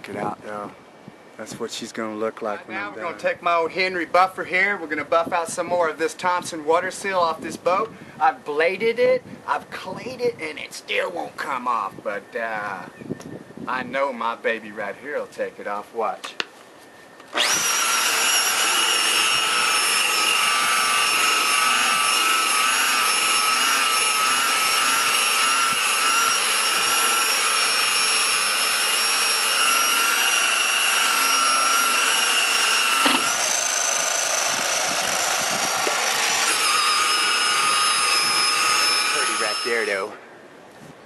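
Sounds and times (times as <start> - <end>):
electric buffer whining: 17.3 - 40.1.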